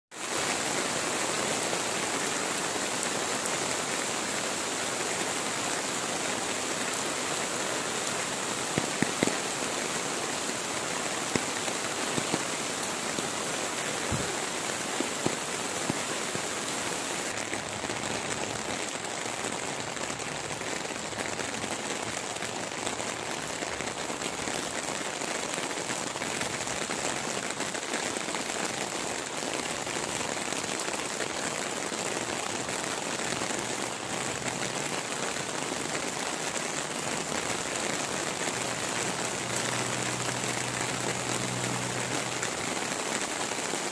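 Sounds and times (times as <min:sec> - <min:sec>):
heavy rain pouring: 0:00.1 - 0:43.9.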